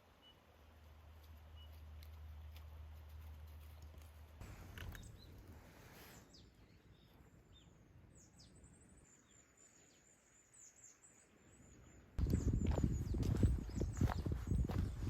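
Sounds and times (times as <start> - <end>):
faint high bird chirps: 4.9 - 15.0.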